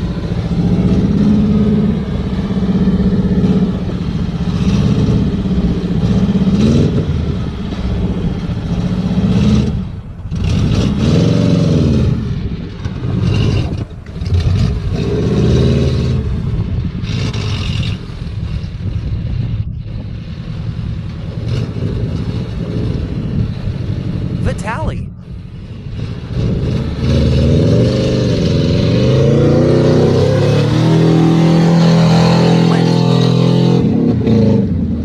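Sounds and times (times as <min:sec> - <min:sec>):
car engine revving hard: 0:25.9 - 0:35.0.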